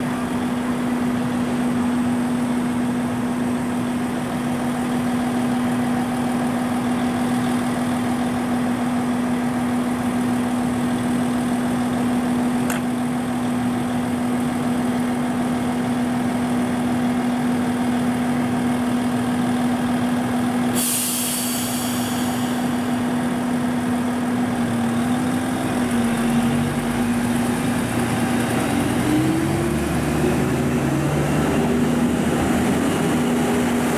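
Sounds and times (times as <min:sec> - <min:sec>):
diesel railcar engine idling: 0:00.0 - 0:33.9
compressed air hissing: 0:20.7 - 0:23.2.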